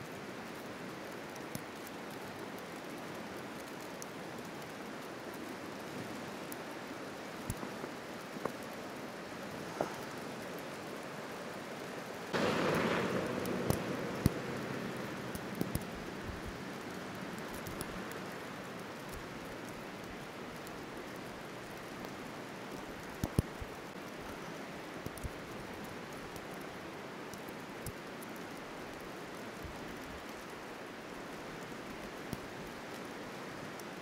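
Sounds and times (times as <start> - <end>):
rushing noise: 12.4 - 18.1
road and tyre noise inside car: 12.4 - 18.3
sharp ticks: 12.4 - 19.8.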